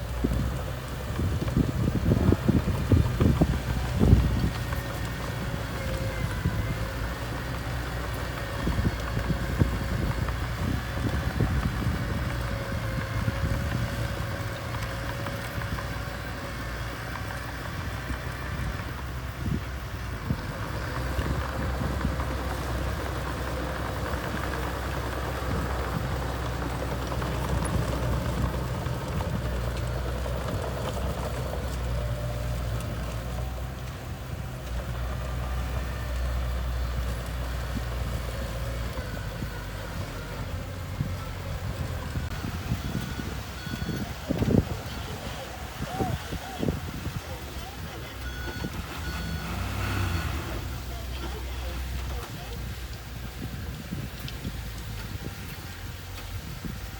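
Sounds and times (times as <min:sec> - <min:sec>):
bulldozer diesel engine running: 0:00.0 - 0:56.9.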